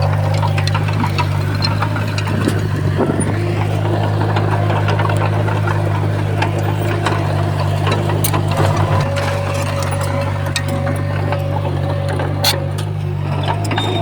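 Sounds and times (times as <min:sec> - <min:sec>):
bulldozer diesel engine running: 0:00.0 - 0:14.0
clanks and clicks from tracks: 0:00.0 - 0:14.0.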